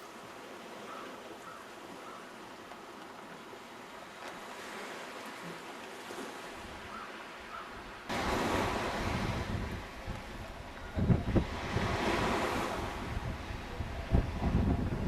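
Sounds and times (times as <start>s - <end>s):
sea surf: 0.0s - 15.0s
wind: 0.0s - 15.0s
wind rumble on microphone: 8.1s - 15.0s.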